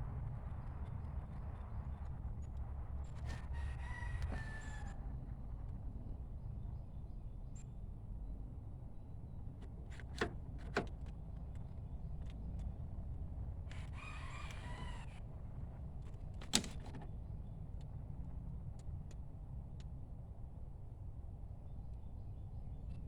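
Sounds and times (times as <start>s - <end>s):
rooster crowing: 3.2s - 5.1s, 13.7s - 15.2s.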